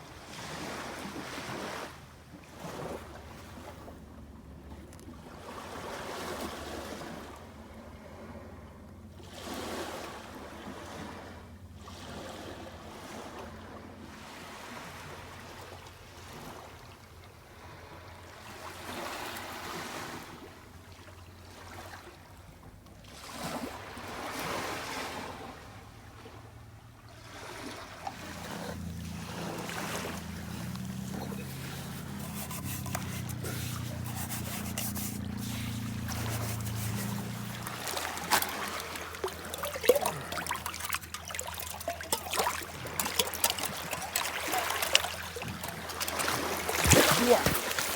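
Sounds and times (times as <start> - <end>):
small waves washing up a beach: 0.0 - 4.0, 23.0 - 47.9
boat engine hum: 24.9 - 47.9.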